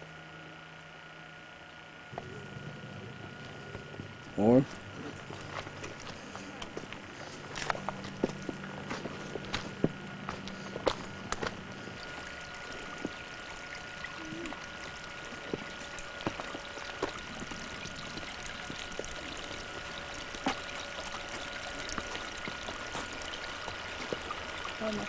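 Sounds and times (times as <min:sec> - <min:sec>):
stream water rushing: 0:05.0 - 0:25.0.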